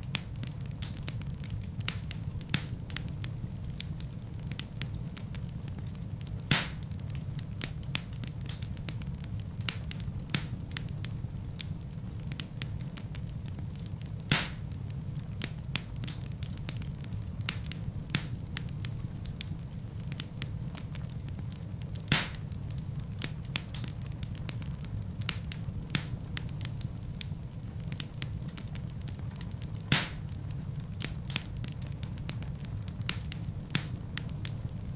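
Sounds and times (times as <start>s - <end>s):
fire crackling in fireplace: 0.0s - 34.9s
loud fire pops: 0.0s - 34.9s.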